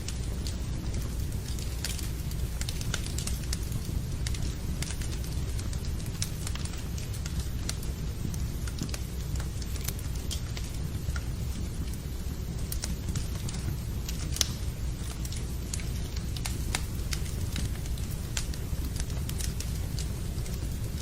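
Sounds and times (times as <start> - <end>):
rain: 0.0 - 21.0
wood fire crackling: 0.0 - 21.0.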